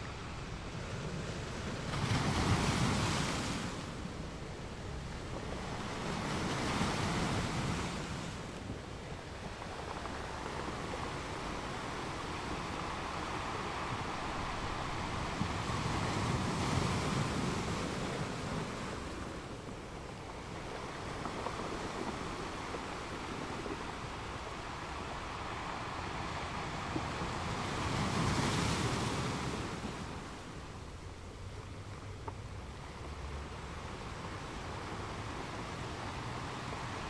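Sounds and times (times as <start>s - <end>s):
waves washing: 0.0s - 37.0s
wind on microphone: 0.0s - 37.0s.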